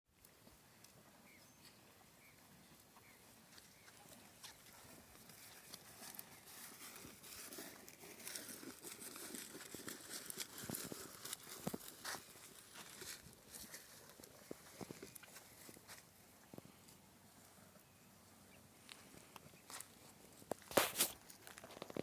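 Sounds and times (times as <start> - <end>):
bull crunching feed: 3.0 - 16.9, 19.3 - 22.0.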